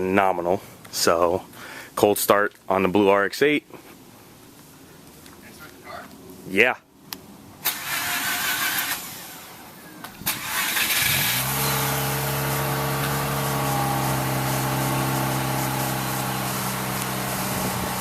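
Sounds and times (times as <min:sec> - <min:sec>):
engine starter cranking: 0:07.6 - 0:18.0
rotary engine idling: 0:07.8 - 0:18.0.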